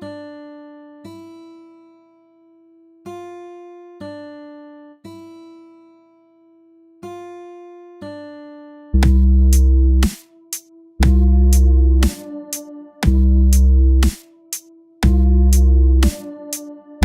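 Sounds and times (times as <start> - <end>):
slow keyboard notes: 9.0 - 17.0.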